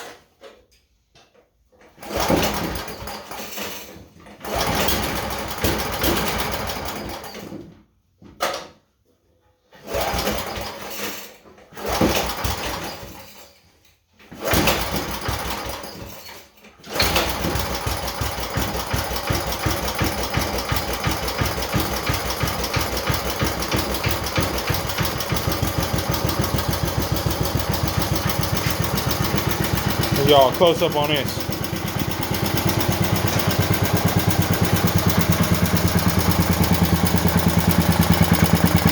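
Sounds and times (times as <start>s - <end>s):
small gas engine running: 2.0s - 3.1s, 4.4s - 7.3s, 9.9s - 10.7s, 11.8s - 13.1s, 14.5s - 15.9s, 16.9s - 38.9s.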